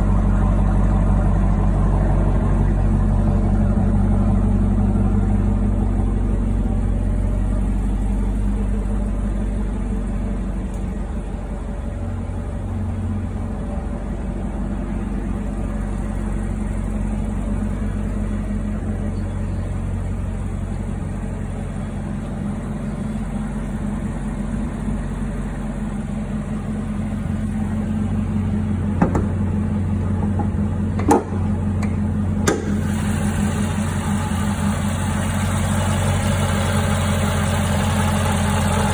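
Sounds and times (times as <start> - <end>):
car engine idling: 0.0 - 38.9
sharp knocks: 29.0 - 29.4.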